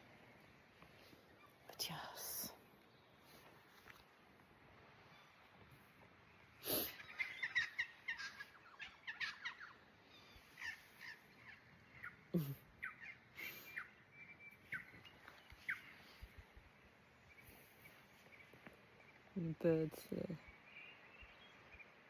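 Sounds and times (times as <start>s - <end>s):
birds chirping and calling: 6.7s - 16.4s.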